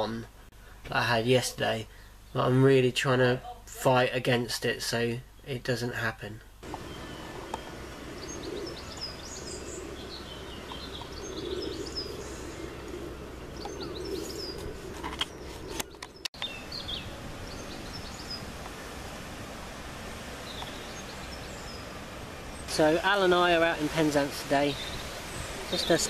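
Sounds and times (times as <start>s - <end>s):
songbirds chirping: 0.0s - 26.0s
steady background hum: 4.2s - 16.3s.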